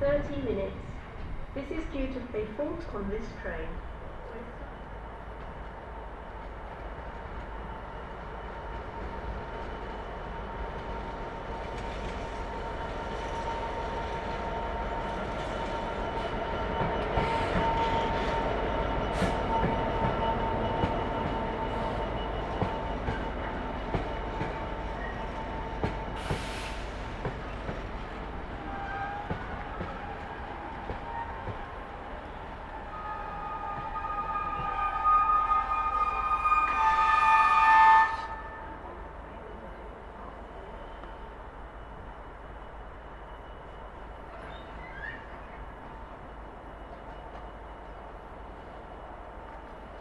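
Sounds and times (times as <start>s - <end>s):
train passing: 0.0s - 50.0s.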